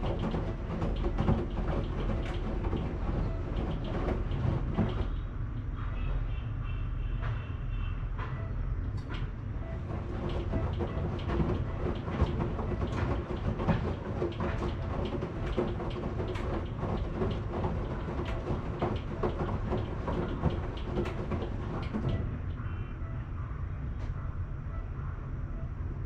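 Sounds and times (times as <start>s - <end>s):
washing machine rumbling: 0.0s - 5.8s, 8.2s - 25.7s
clicks and knocks: 9.0s - 22.3s.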